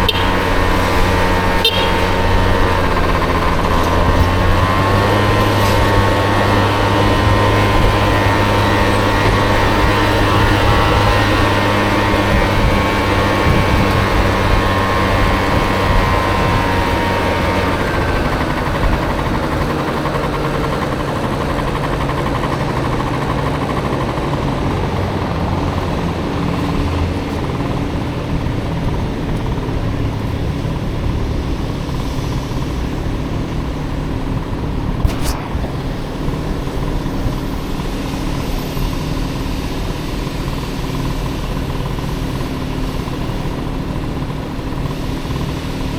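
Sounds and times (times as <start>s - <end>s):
road and wind noise: 0.0s - 45.9s
scooter engine running: 0.0s - 45.9s
sharp click: 35.0s - 35.9s.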